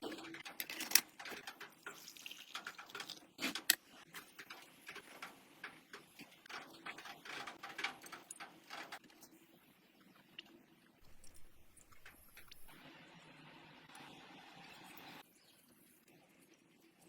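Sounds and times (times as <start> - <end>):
light clicks taps and scraping: 0.0 - 9.5.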